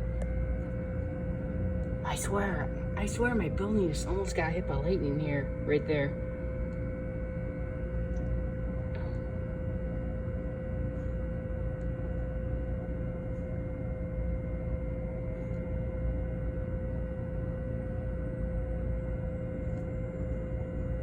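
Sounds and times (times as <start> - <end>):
low rumble: 0.0 - 15.6
steady hum with tones: 0.0 - 21.0.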